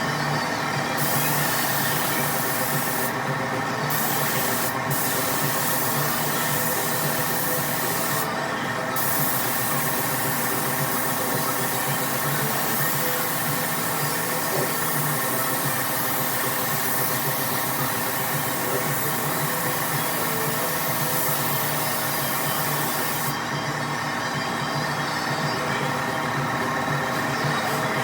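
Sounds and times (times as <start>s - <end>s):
spray gun hissing: 1.0s - 3.2s, 3.9s - 8.3s, 9.0s - 23.3s.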